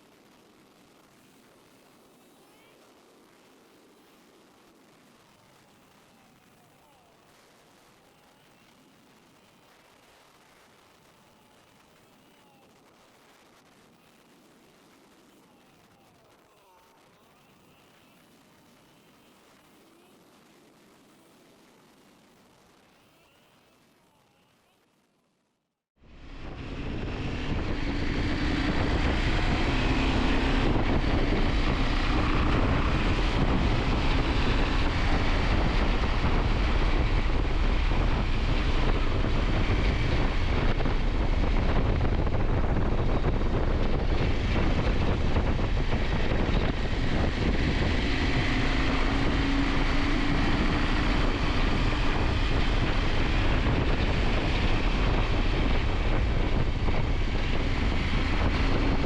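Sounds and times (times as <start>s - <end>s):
wind rushing over microphone: 26.0s - 59.0s
motorcycle engine running: 26.2s - 59.0s.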